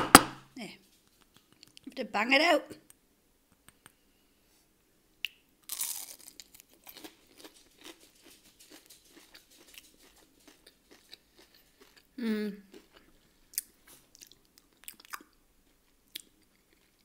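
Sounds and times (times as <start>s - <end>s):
crunchy bite: 5.2s - 8.0s
crunchy chewing: 5.6s - 17.0s.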